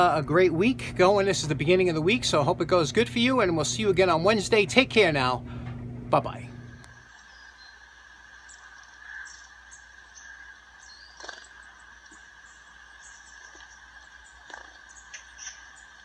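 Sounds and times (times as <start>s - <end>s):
small birds chirping: 6.7s - 16.0s.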